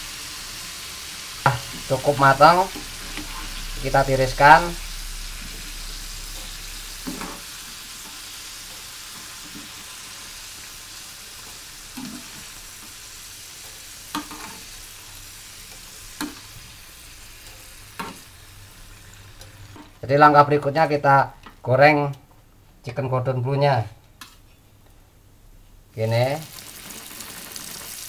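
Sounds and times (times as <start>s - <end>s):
fries sizzling in hot oil: 0.0s - 20.1s, 26.2s - 28.0s.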